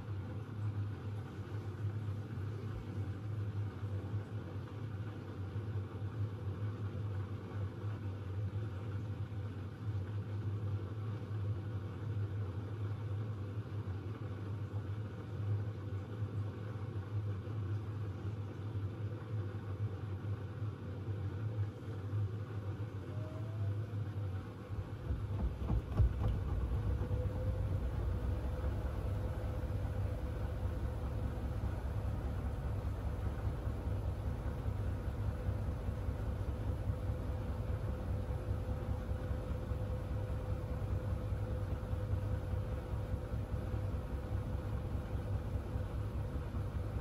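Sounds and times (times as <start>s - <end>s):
washing machine humming: 21.8s - 47.0s
faint rising whine: 22.1s - 47.0s.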